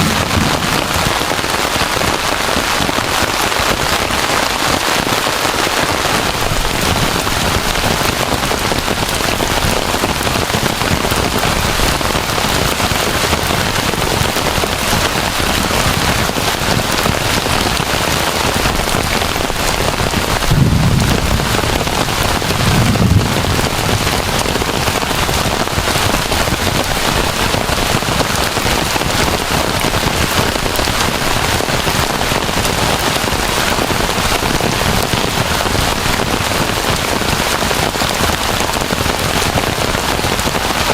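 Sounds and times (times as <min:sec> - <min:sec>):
low rumbles: 0:00.0 - 0:01.6, 0:18.6 - 0:25.4
heavy rain hissing: 0:00.0 - 0:40.9.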